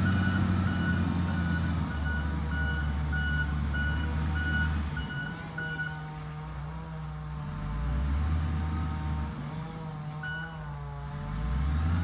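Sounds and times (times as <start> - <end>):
diesel engine running: 0.0 - 5.2.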